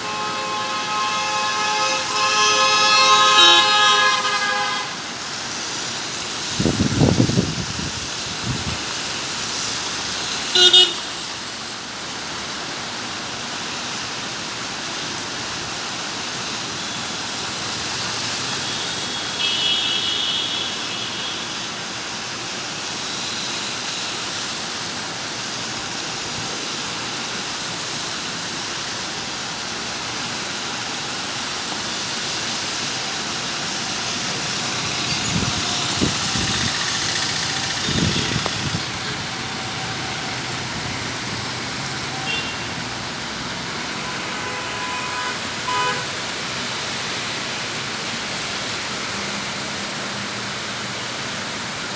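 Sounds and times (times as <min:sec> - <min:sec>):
faint high horn tone: 0:00.0 - 0:05.0, 0:43.9 - 0:46.1
vehicle horn toot: 0:00.0 - 0:05.1, 0:10.5 - 0:11.2, 0:18.6 - 0:21.6, 0:37.4 - 0:40.5, 0:42.0 - 0:42.9, 0:43.8 - 0:46.2
heavy rain: 0:00.0 - 0:51.9.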